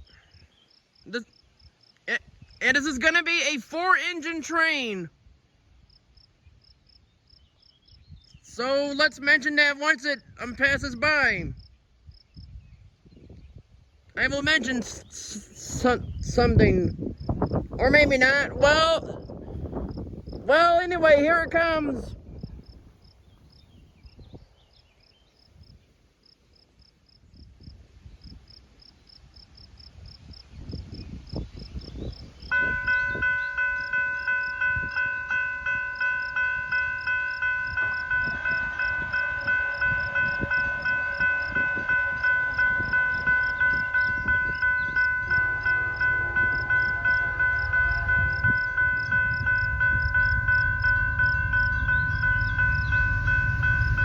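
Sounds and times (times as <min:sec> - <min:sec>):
train low rumble: 0:32.4 - 0:54.0
crossing bell ringing: 0:32.5 - 0:54.0.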